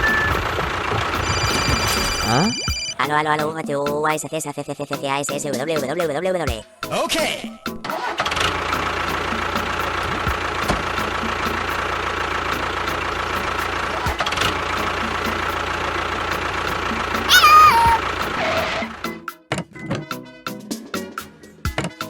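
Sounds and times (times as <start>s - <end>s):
short falling whistle tone: 0.0s - 0.5s.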